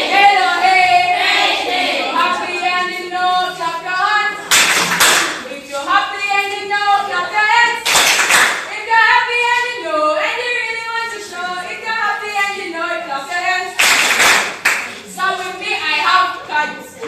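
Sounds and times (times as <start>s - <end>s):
group of voices singing: 0.0s - 7.9s, 8.6s - 13.9s, 14.5s - 17.0s
hand clapping: 4.4s - 5.4s, 7.8s - 8.7s, 13.8s - 15.0s.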